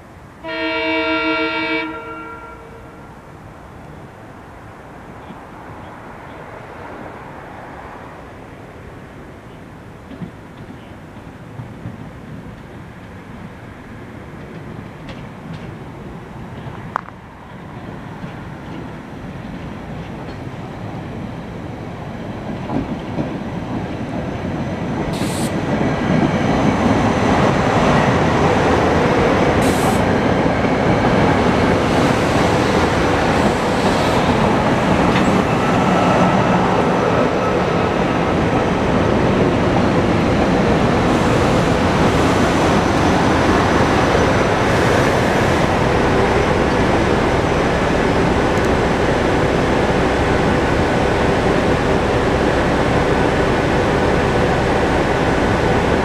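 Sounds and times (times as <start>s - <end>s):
train wheels rumbling on rail: 9.1s - 56.0s
brief high hisses: 25.2s - 25.6s.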